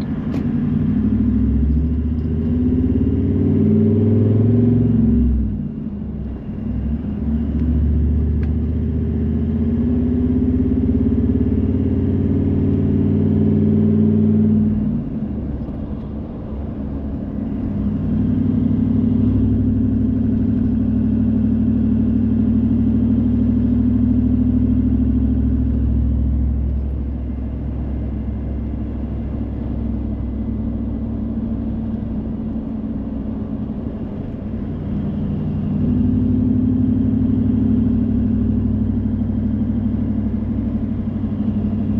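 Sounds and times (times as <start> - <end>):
car engine revving: 0.0 - 41.9
road noise: 0.0 - 41.9.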